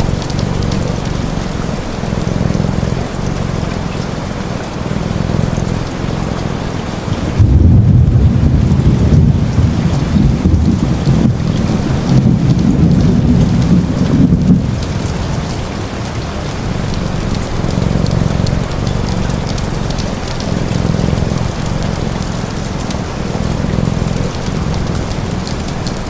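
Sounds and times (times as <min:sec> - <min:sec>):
low thunder rumble: 0:00.0 - 0:26.0
steady rain: 0:00.0 - 0:26.0.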